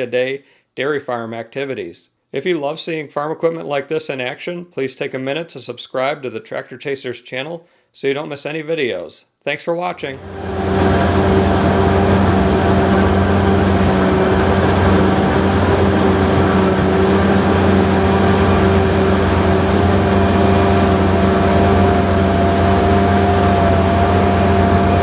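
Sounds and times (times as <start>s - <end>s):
diesel farm machinery engine drone: 10.2s - 25.0s
high machine whine: 10.2s - 25.0s.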